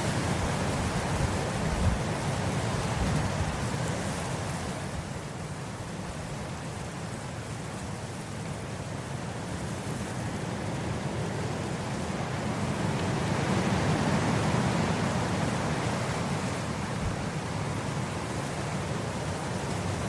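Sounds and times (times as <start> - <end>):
wind blowing across grass: 0.0 - 20.0.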